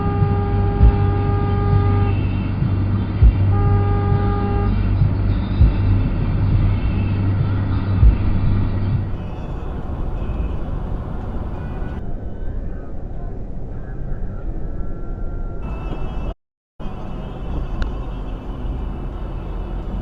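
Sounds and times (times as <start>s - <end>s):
car horn honk: 0.0s - 2.3s, 3.5s - 4.9s, 9.1s - 12.0s
road noise: 0.0s - 12.0s, 15.6s - 20.0s
vehicle engine rumble: 0.0s - 12.2s, 15.6s - 20.0s.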